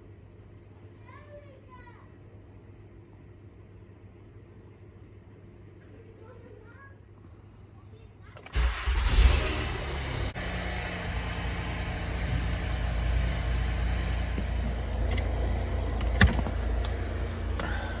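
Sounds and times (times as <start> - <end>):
car engine running: 8.6 - 18.0.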